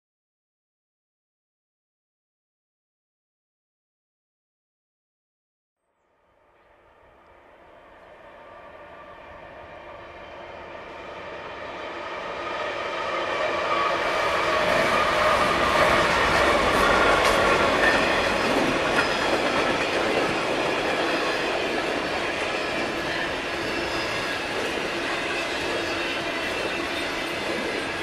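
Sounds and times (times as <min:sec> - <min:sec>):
freight train passing: 0:06.1 - 0:28.0
wheels clattering over rails: 0:14.5 - 0:28.0.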